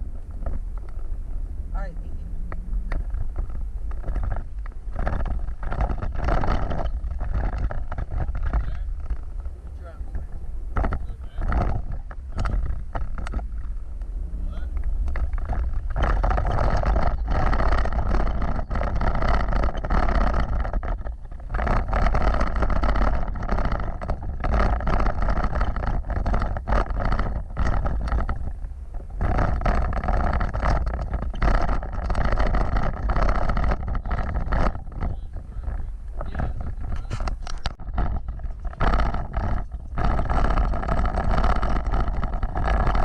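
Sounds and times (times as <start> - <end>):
knocks and rattles: 0.0 - 43.0
off-road vehicle rumble: 0.0 - 43.0.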